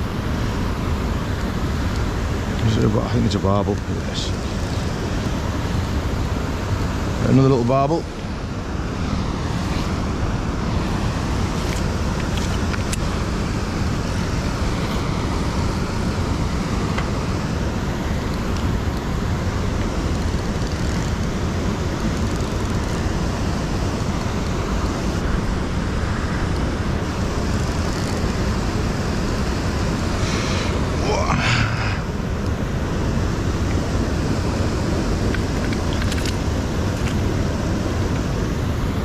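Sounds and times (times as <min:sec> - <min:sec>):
rushing river water: 0:00.0 - 0:39.0.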